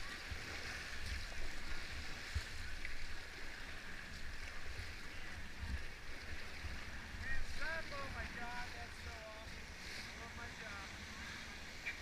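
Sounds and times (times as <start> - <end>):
paddles in water: 0.0 - 12.0
wind buffeting microphone: 4.7 - 9.6.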